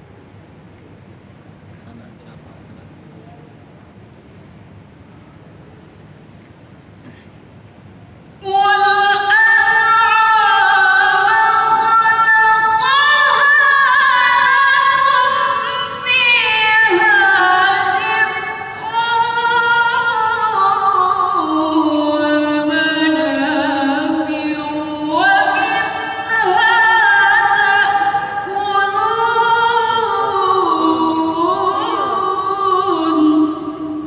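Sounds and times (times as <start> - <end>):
woman reciting melodically: 8.4 - 34.0.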